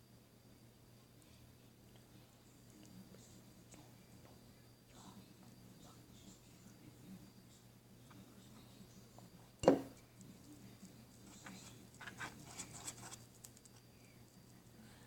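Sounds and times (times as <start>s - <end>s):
scratching handling noises: 10.1s - 13.9s.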